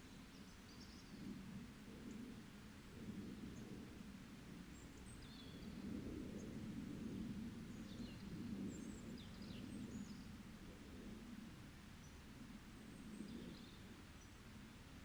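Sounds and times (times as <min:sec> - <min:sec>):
songbirds chirping: 0:04.6 - 0:06.8, 0:07.6 - 0:11.1, 0:11.7 - 0:15.0.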